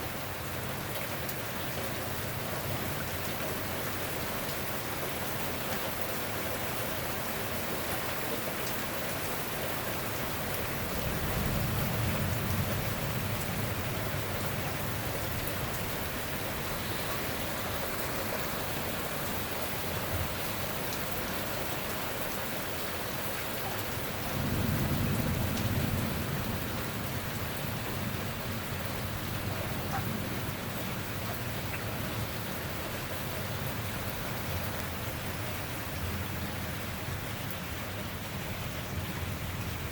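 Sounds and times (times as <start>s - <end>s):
steady rain: 0.0s - 39.9s
thunder rumbling: 10.3s - 18.4s, 24.0s - 32.6s.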